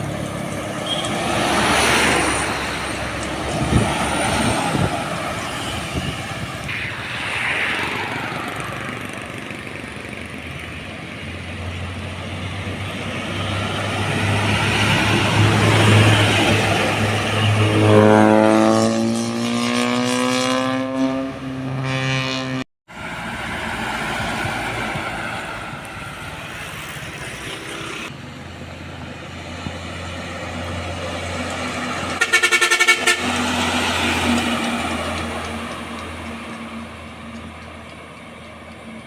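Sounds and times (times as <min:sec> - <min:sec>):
heavy truck engine accelerating: 0:00.0 - 0:39.0
highway traffic noise: 0:00.0 - 0:39.0
pulsing vehicle horn blast: 0:00.8 - 0:01.2, 0:17.2 - 0:22.6, 0:32.2 - 0:33.6.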